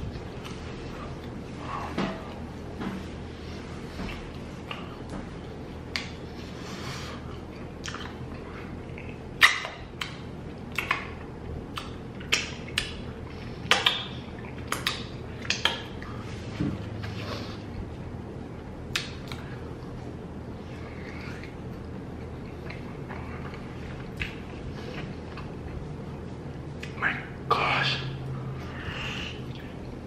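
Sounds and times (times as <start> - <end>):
low steady hum: 0.0 - 30.0
mouth smacks while chewing: 4.1 - 6.2, 7.3 - 16.2, 18.9 - 20.1, 20.9 - 25.9.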